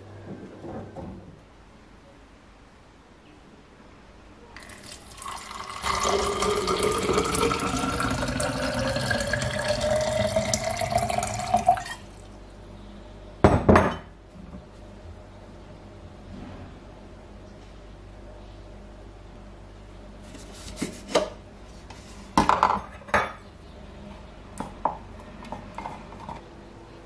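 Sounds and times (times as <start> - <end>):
liquid pouring into a glass: 4.6 - 12.1
glass clinking set down: 13.5 - 14.1.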